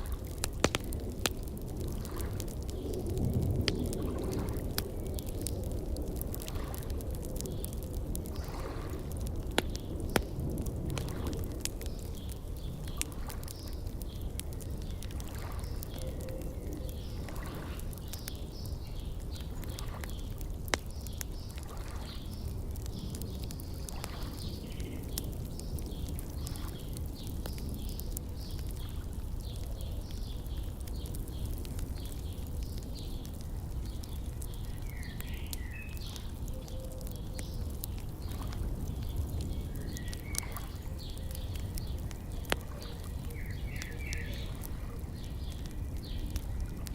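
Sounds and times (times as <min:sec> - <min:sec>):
wood fire crackling and popping: 0:00.0 - 0:46.9
birds chirping: 0:11.8 - 0:46.9.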